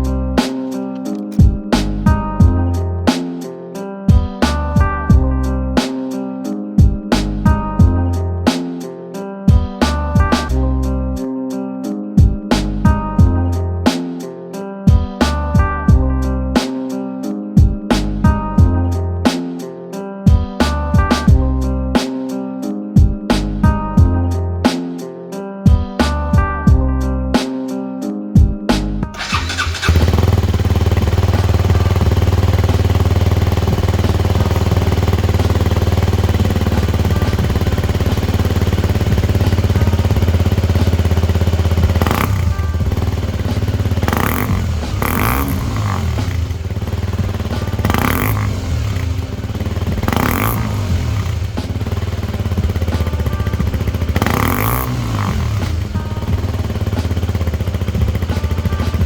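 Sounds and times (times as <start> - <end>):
motorcycle engine idling and revving: 0.0 - 2.8, 6.8 - 8.0, 29.2 - 59.0.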